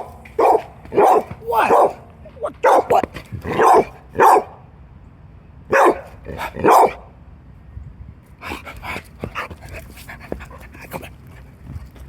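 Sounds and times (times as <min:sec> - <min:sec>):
dog barking: 0:00.0 - 0:04.6, 0:05.7 - 0:07.0.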